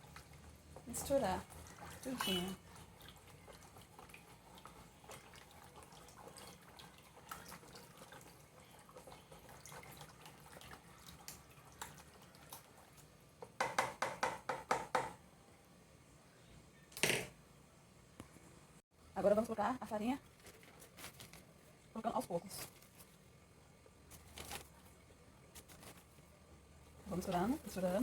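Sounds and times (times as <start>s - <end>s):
liquid sloshing in a bowl: 0.0s - 13.2s.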